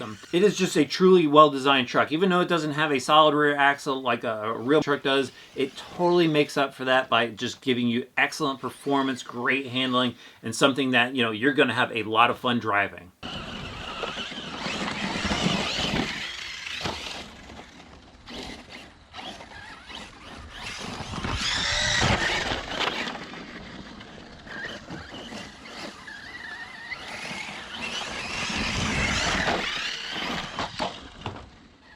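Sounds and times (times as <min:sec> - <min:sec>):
rc truck motor whine: 0:00.0 - 0:00.8, 0:05.3 - 0:06.0, 0:13.2 - 0:31.9
tyres rushing on dirt: 0:00.0 - 0:06.8, 0:13.2 - 0:31.9.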